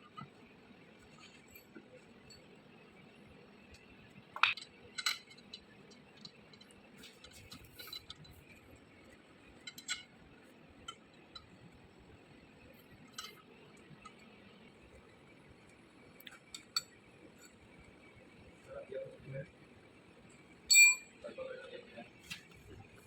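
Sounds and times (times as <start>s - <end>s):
metal parts and tools clinking: 4.4s - 8.3s.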